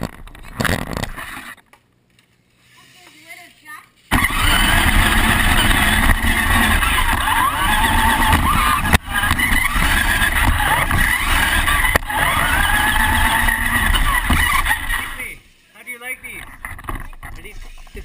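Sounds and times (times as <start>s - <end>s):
loud rolling noise: 4.1s - 15.4s
remote-control truck motor whining: 4.1s - 15.4s.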